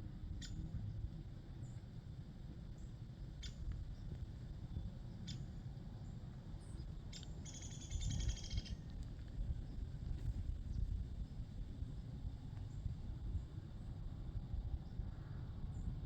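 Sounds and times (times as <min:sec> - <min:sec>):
small bird chirping: 0:07.1 - 0:08.8.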